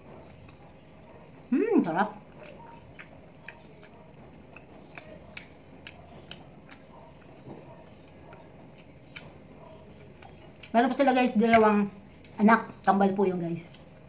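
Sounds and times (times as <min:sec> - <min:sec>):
person chewing fries: 0:02.2 - 0:10.8.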